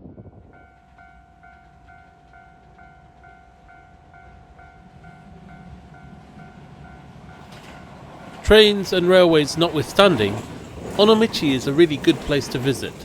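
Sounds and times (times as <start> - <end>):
level crossing alarm bell: 0.6 - 7.8.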